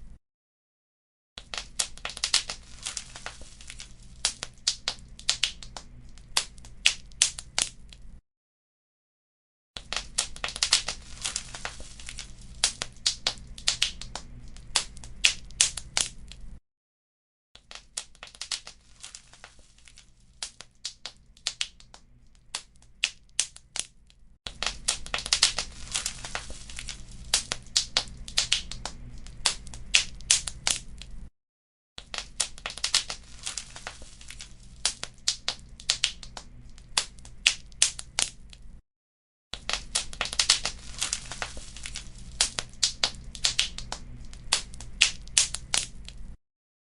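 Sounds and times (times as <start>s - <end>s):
wood fire crackling and popping: 1.4s - 8.1s, 9.8s - 16.6s, 17.7s - 23.9s, 24.5s - 31.3s, 32.0s - 38.7s, 39.6s - 46.4s.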